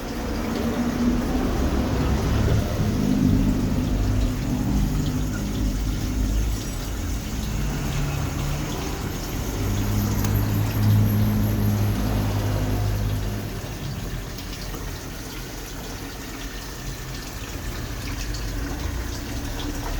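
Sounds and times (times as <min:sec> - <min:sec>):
water splashing into pond: 0:00.0 - 0:19.9.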